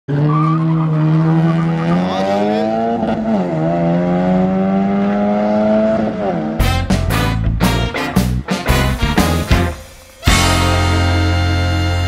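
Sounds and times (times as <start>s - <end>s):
car engine accelerating hard: 0.1s - 6.6s.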